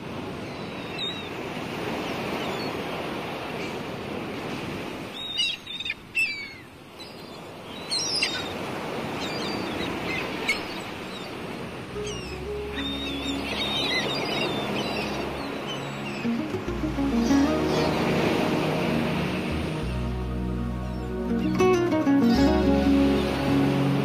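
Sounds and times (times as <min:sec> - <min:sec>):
sea waves washing on shore: 0:00.0 - 0:24.0
bird chirps and squeals: 0:05.2 - 0:08.6.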